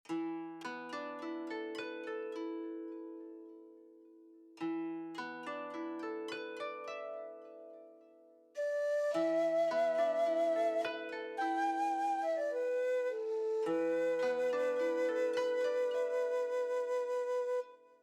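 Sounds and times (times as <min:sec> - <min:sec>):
held wavering tone: 0:08.6 - 0:17.6
plucked harp-like arpeggios: 0:08.7 - 0:17.1.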